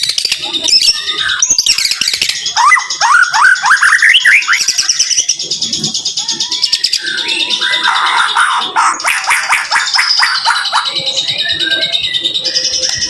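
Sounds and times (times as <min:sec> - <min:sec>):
songbird singing: 0:00.0 - 0:13.0
harsh rasping bird call: 0:07.5 - 0:11.0.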